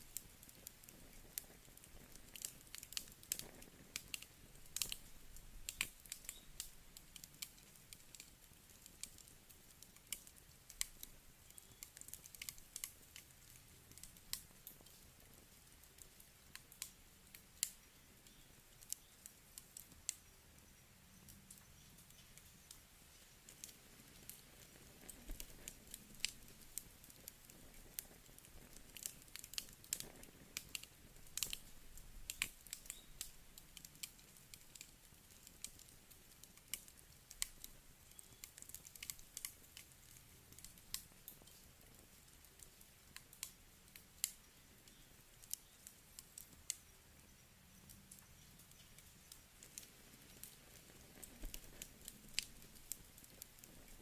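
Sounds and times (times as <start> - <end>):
campfire crackling and popping: 0.0 - 54.0
faint steady hiss: 0.0 - 54.0.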